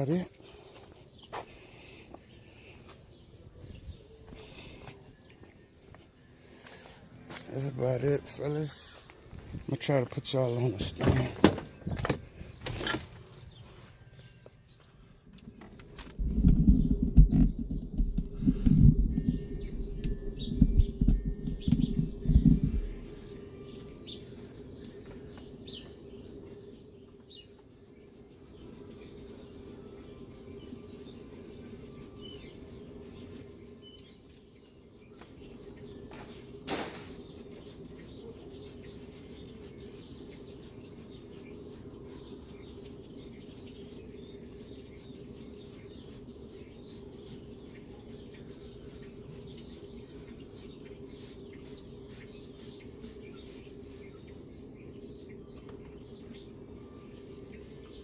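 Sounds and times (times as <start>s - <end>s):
small birds chirping: 0.0s - 58.0s
steady low hum: 12.2s - 58.0s.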